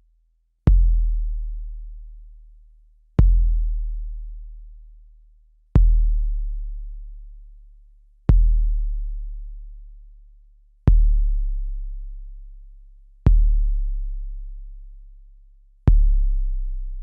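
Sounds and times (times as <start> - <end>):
deep bass kick drum: 0.7 - 1.8, 3.2 - 4.2, 5.8 - 6.8, 8.3 - 9.4, 10.9 - 12.0, 13.3 - 14.6, 15.9 - 17.0.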